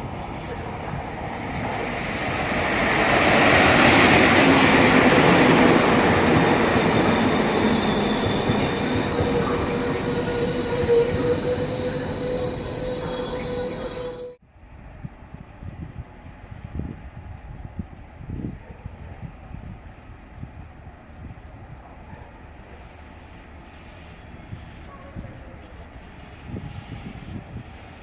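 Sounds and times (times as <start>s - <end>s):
freight train rolling past: 0.0s - 14.4s, 21.5s - 28.0s
high-pitched wheel squeal: 7.7s - 14.4s.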